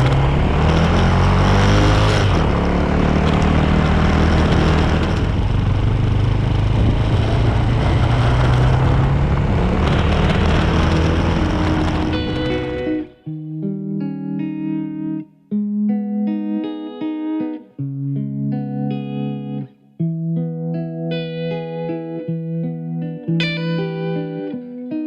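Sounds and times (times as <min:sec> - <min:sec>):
wind and road noise: 0:00.0 - 0:13.1
motorcycle engine accelerating: 0:00.0 - 0:13.2.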